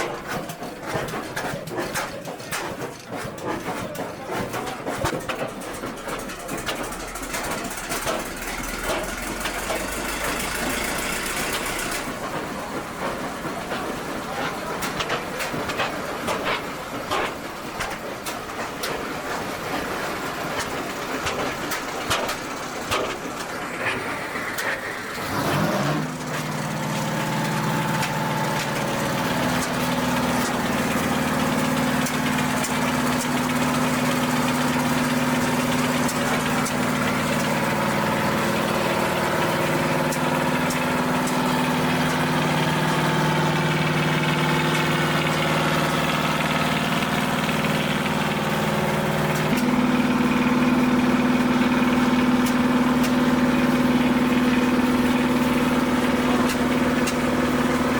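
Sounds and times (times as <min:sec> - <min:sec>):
tractor engine running: 0:00.0 - 0:57.9.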